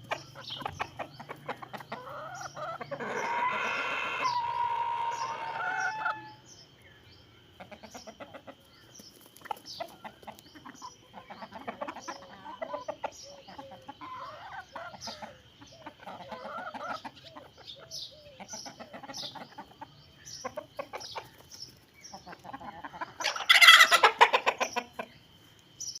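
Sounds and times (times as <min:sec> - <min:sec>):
chickens clucking: 0:00.0 - 0:26.0
rooster crowing: 0:02.4 - 0:06.4.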